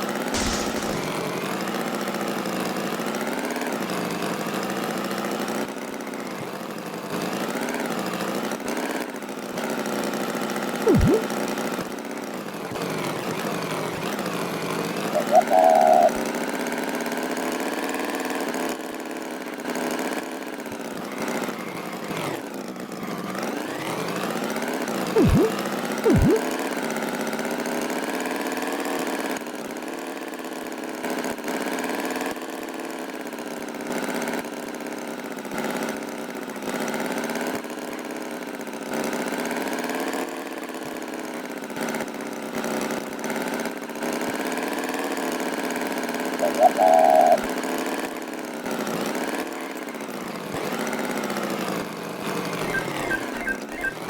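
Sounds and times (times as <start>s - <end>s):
short sharp sounds: 0.4s - 1.4s, 10.9s - 11.3s, 25.2s - 26.4s
tractor engine running: 0.4s - 1.6s.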